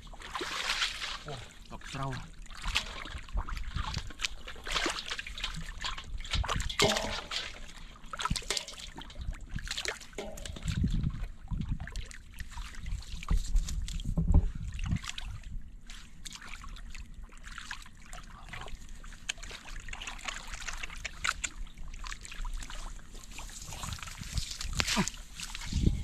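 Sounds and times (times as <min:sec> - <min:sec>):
small splashes and drips: 0:00.0 - 0:25.8
water sloshing and trickling: 0:00.0 - 0:26.0
low thumps and rumble: 0:10.2 - 0:11.9, 0:13.3 - 0:15.0, 0:23.7 - 0:26.0.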